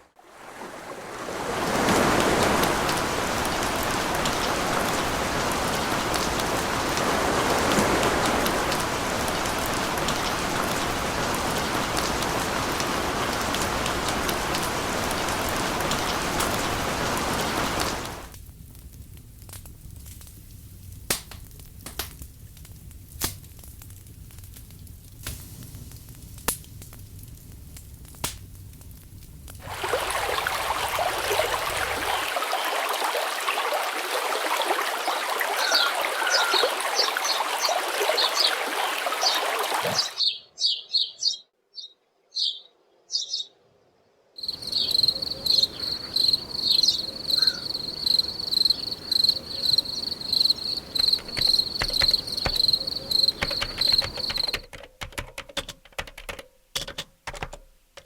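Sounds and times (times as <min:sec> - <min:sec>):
birds chirping: 0:30.0 - 0:43.6, 0:44.4 - 0:54.6
insects trilling: 0:33.7 - 0:40.2, 0:44.4 - 0:54.6.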